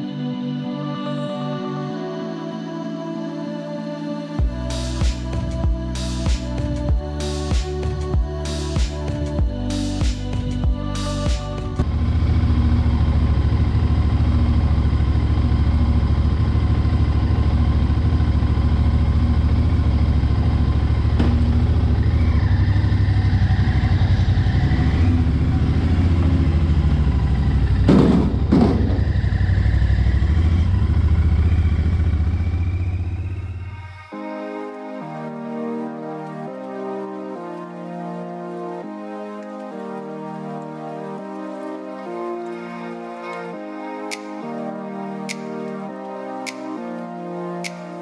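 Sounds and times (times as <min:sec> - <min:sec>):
motorcycle engine idling: 0:11.8 - 0:33.7
sharp knocks: 0:27.9 - 0:29.0.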